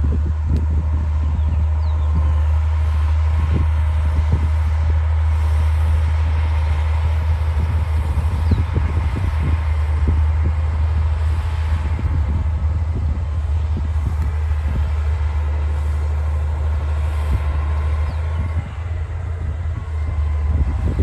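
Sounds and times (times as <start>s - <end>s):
bulldozer diesel engine drone: 0.0s - 21.0s.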